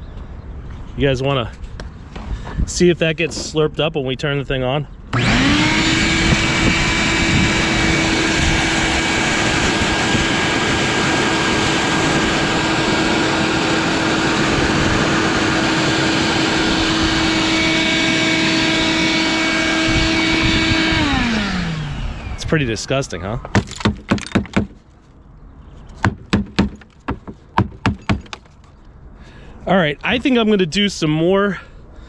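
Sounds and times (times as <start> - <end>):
vacuum cleaner running: 5.2 - 22.4.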